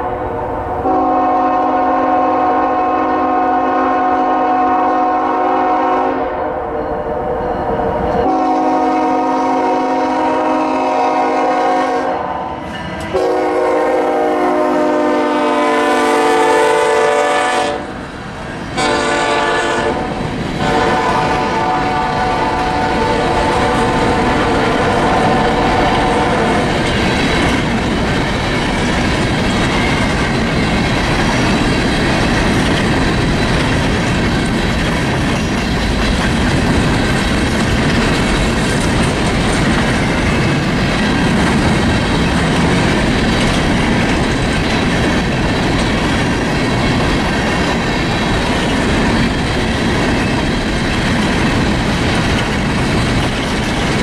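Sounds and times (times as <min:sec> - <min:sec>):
locomotive horn: 0:00.0 - 0:18.0, 0:18.8 - 0:26.8
freight train wheels clacking: 0:07.9 - 0:54.0.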